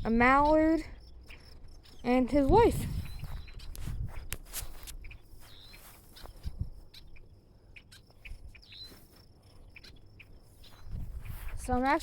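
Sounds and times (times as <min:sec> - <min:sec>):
crickets trilling: 0:00.0 - 0:12.0
short bird chirps: 0:05.0 - 0:06.4, 0:07.8 - 0:09.1.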